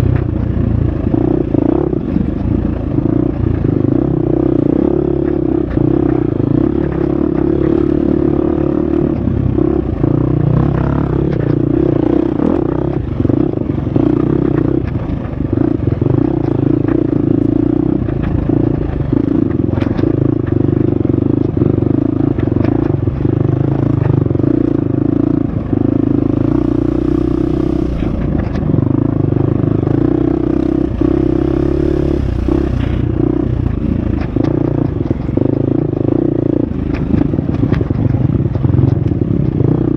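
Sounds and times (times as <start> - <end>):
dirt bike engine revving: 25.8 - 28.4, 29.9 - 37.8.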